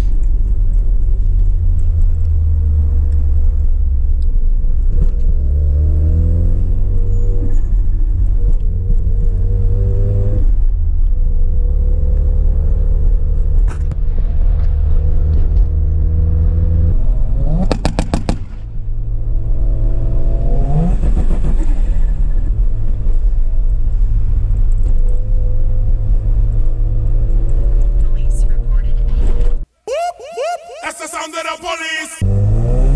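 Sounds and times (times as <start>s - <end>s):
rotary engine revving: 32.2s - 32.9s.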